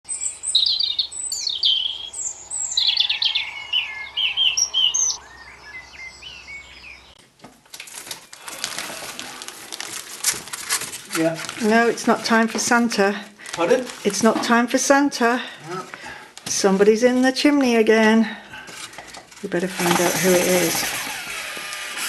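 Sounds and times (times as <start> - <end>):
birds chirping: 0.1 - 7.3
birds scratching in chimney: 18.6 - 21.6.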